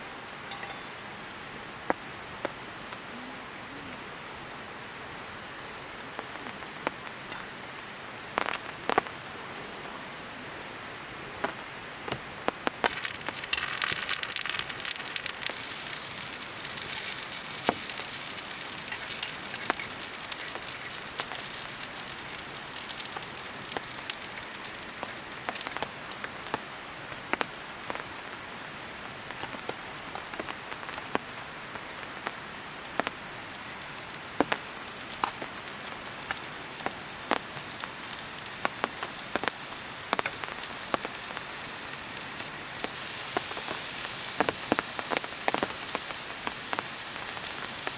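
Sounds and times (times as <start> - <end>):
fat spattering pops: 11.4 - 21.4
food sizzling in a pan: 12.5 - 26.6, 29.3 - 47.9.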